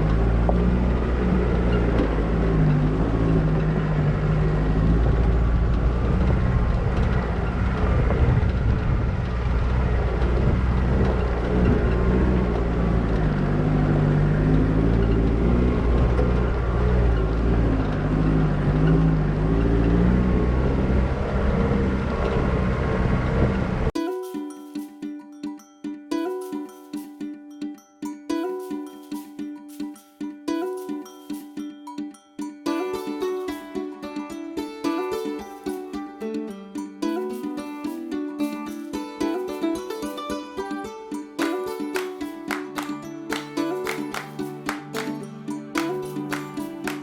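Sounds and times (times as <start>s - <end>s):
vehicle engine rumble: 0.0s - 24.0s
plucked-string music: 0.0s - 47.0s.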